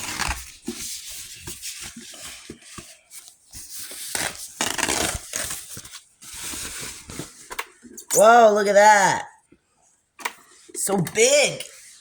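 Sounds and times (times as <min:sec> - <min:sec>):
packaging rustling and scraping: 0:00.0 - 0:08.0.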